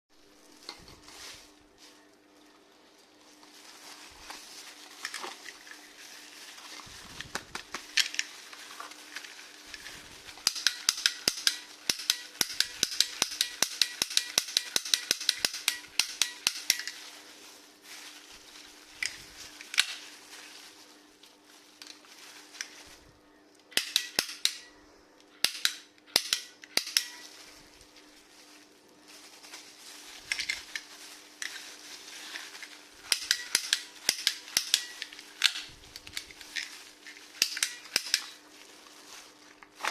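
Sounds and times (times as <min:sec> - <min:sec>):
toy guns snapping clicks: 0:10.4 - 0:16.8, 0:23.7 - 0:24.6, 0:25.4 - 0:27.1, 0:33.1 - 0:35.7.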